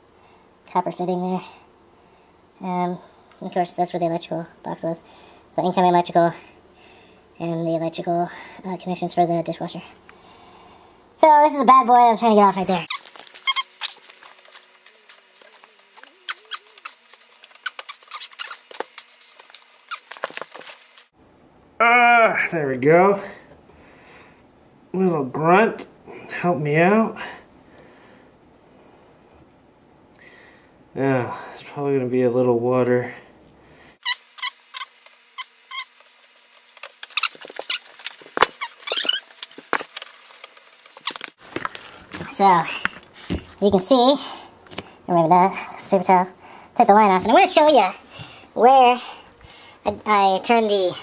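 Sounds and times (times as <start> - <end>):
high squeaks of fitting: 12.9 - 15.3, 16.0 - 21.1, 34.0 - 36.1, 37.0 - 40.0
small clicks and scrapes: 12.9 - 21.1, 34.4 - 43.1.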